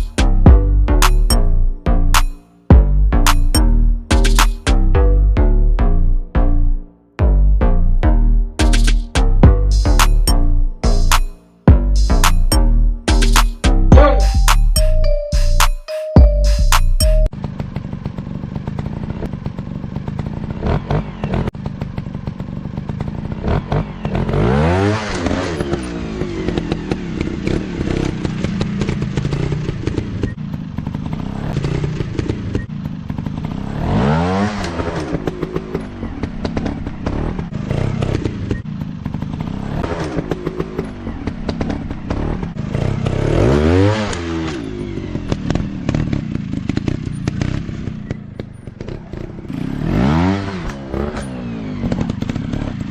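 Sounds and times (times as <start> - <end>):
dirt bike engine revving: 17.4 - 52.9.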